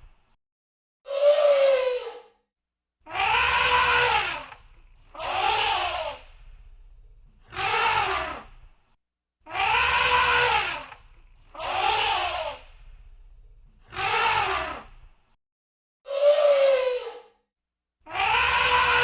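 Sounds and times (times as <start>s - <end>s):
elephant trumpeting: 3.1s - 6.3s, 7.5s - 8.5s, 9.5s - 12.7s, 13.9s - 14.9s, 18.1s - 19.0s.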